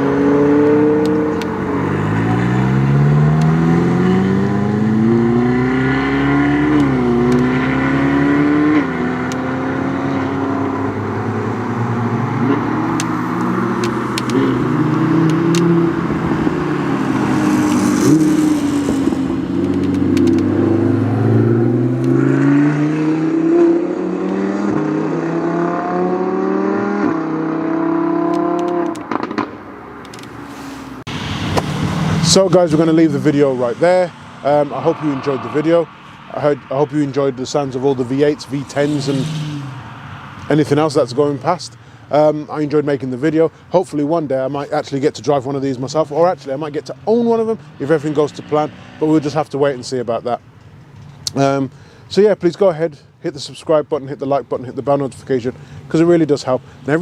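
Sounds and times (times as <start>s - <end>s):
car engines accelerating hard: 0.0s - 51.6s.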